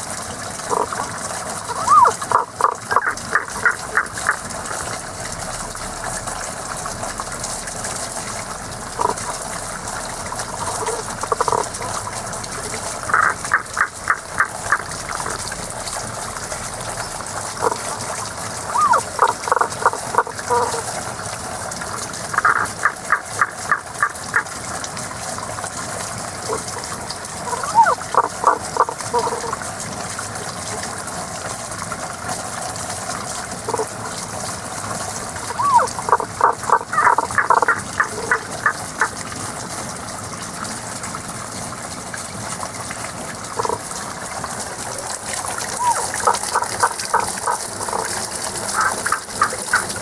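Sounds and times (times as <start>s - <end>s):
flowing water rushing: 0.0s - 50.0s
frogs calling: 1.6s - 4.5s, 9.0s - 9.5s, 10.3s - 15.6s, 16.9s - 17.9s, 18.6s - 20.8s, 22.2s - 24.5s, 26.5s - 29.6s, 35.4s - 39.2s, 43.6s - 43.8s, 45.6s - 50.0s.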